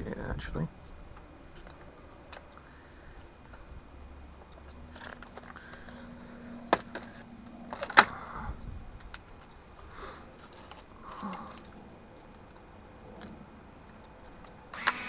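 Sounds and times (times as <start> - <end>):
sharp clicks: 4.4 - 15.0.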